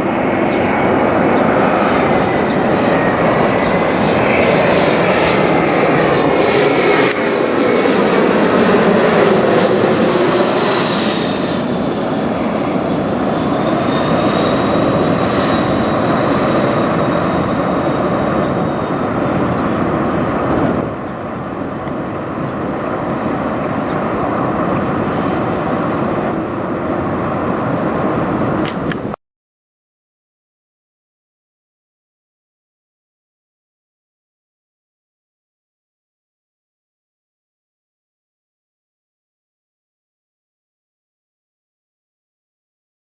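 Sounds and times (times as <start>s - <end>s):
jet flying overhead: 0.0s - 29.2s.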